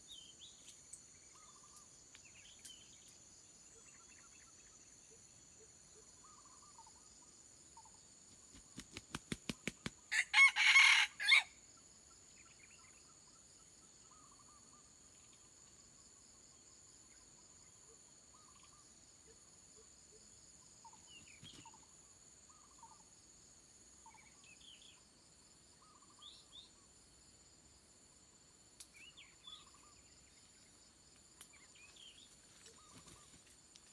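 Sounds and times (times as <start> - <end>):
small bird chirps: 0.0 - 7.1, 20.8 - 21.9, 28.8 - 30.8, 31.4 - 33.6
faint insect trilling: 0.0 - 33.9
rooster wings flapping: 8.4 - 10.0, 32.6 - 33.5
rooster crowing: 10.1 - 11.6.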